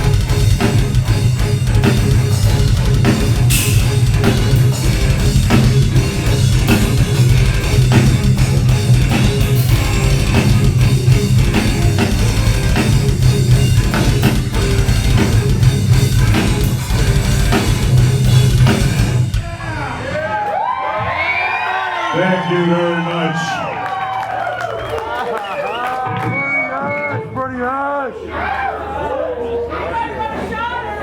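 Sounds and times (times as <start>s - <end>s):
distorted electric guitars: 0.0s - 20.2s
bass guitar: 0.0s - 20.4s.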